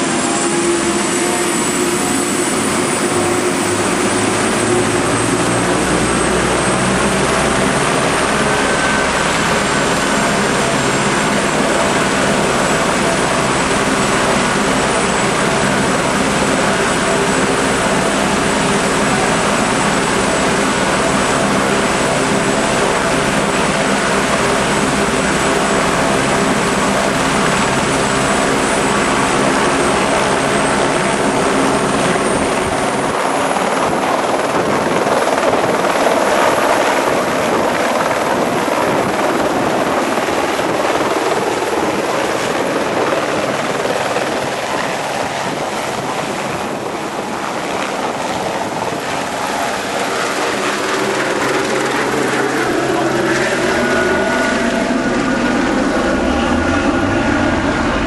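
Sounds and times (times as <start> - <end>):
helicopter rotor and turbine: 0.0 - 58.0
high turbine whine: 0.0 - 58.0.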